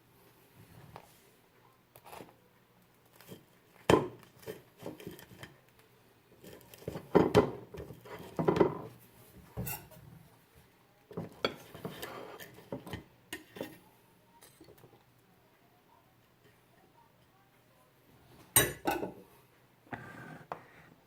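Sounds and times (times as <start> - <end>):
utensils clanking against dishes: 9.6 - 10.0.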